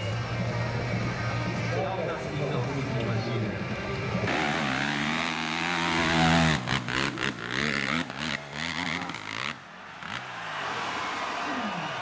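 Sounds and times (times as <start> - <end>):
dirt bike engine revving: 4.2 - 10.2.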